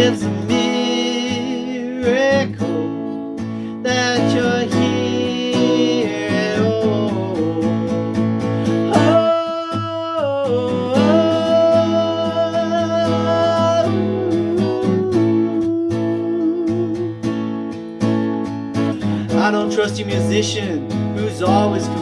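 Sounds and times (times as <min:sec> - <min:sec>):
acoustic guitar strumming: 0:00.0 - 0:22.0
wordless sung melody: 0:00.0 - 0:22.0.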